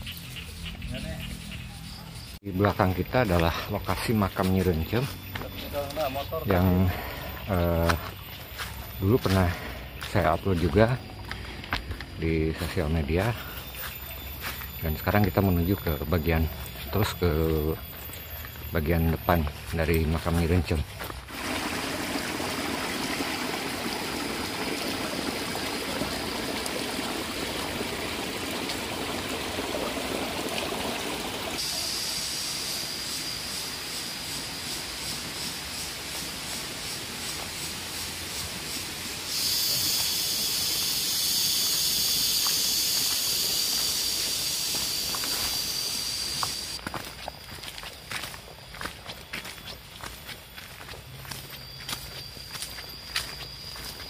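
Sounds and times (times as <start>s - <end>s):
stream water flowing: 21.2s - 31.9s
high-pitched hiss: 29.3s - 54.0s.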